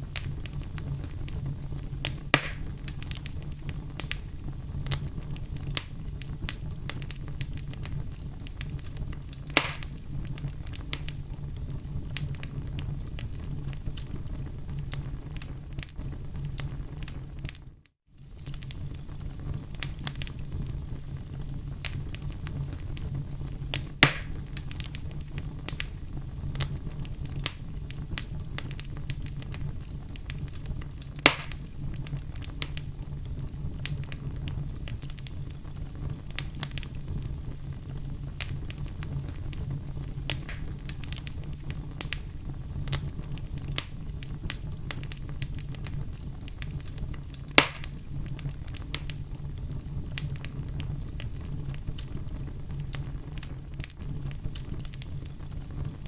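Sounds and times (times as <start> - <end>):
loud fire pops: 0.0 - 56.0
wood fire crackling: 0.0 - 56.0.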